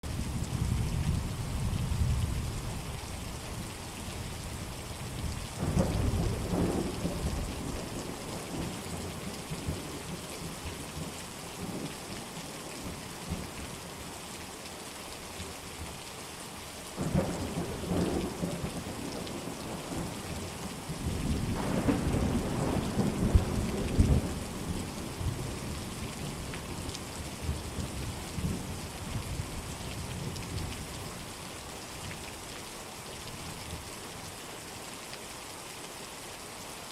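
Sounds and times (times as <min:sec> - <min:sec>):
steady rain: 0:00.0 - 0:36.9
thunder rumbling: 0:05.2 - 0:09.9, 0:21.0 - 0:26.4.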